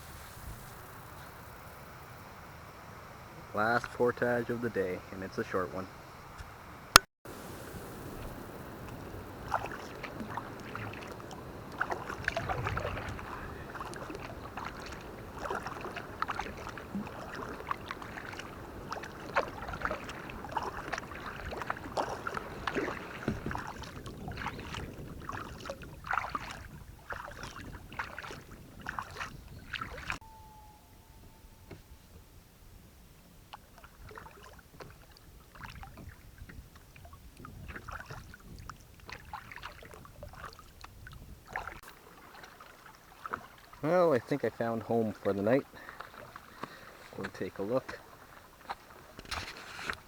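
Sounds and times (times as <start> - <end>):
steady background hiss: 0.0 - 21.8
paddle splashing in water: 0.0 - 32.1, 33.2 - 50.0
water dripping: 8.0 - 30.6.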